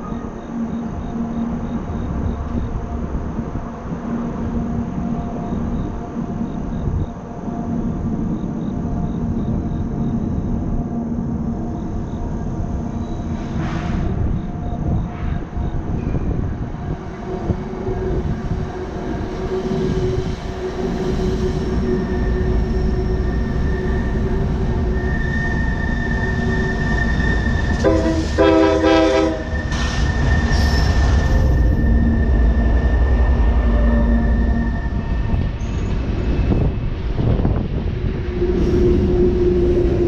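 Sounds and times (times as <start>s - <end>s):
diesel locomotive rumbling past: 0.0s - 40.0s
train horn blast: 17.4s - 29.9s.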